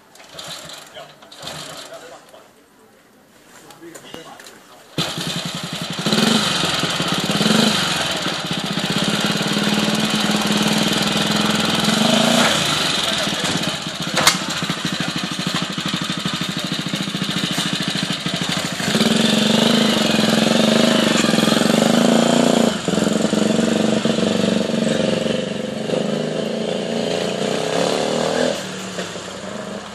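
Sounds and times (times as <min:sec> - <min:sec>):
motorcycle engine: 0:00.1 - 0:02.3, 0:05.0 - 0:29.9.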